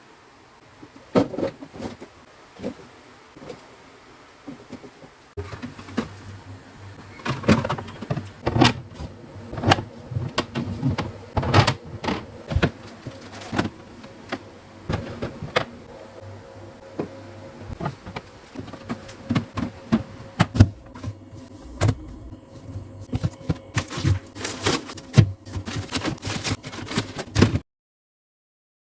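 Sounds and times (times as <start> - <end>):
fridge hum: 0.4 - 27.6.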